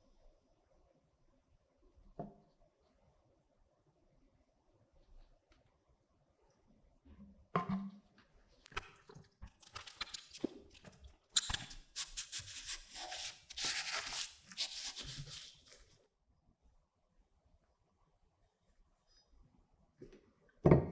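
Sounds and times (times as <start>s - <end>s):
scraping and rubbing strokes: 9.4s - 15.9s.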